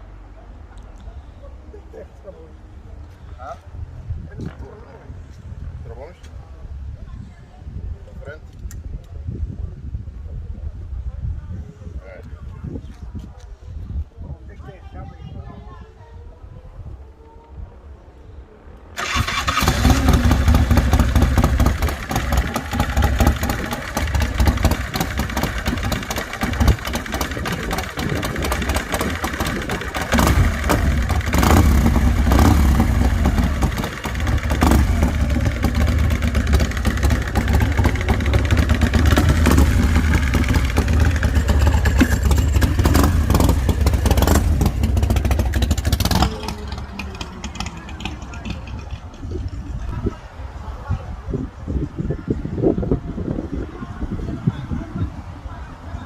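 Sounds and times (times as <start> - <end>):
motorcycle engine rumbling: 18.9 - 56.0.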